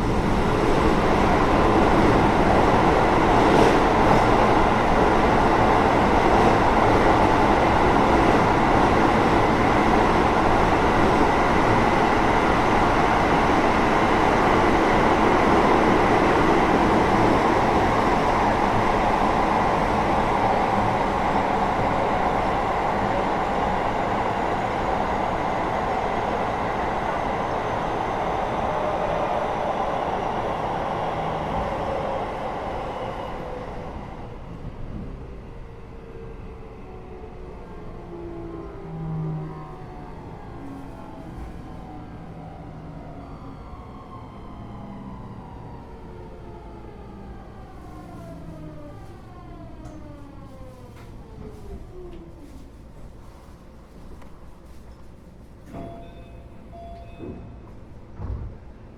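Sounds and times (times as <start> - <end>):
train wheels on rail: 0.0 - 35.5, 47.3 - 58.9.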